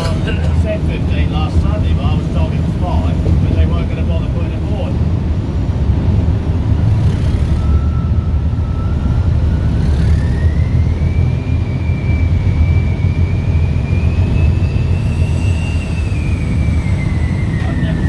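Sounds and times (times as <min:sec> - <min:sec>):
diesel locomotive rumbling: 0:00.0 - 0:18.0
thin rising whine: 0:07.5 - 0:18.0.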